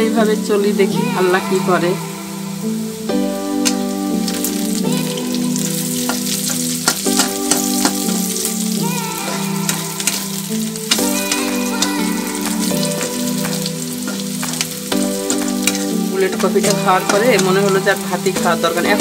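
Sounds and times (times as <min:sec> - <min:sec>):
soft background music: 0:00.0 - 0:19.0
food sizzling in hot oil: 0:00.2 - 0:19.0
spatula clicking and scraping: 0:06.1 - 0:08.3, 0:10.9 - 0:18.0.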